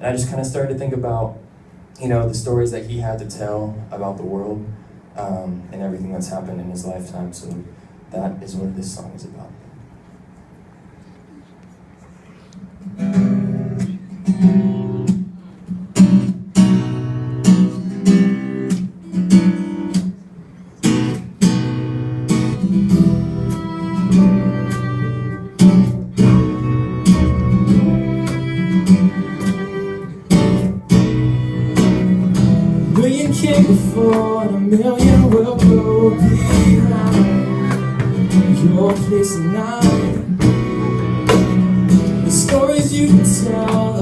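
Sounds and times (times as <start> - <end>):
acoustic guitar strumming: 12.8 - 44.0.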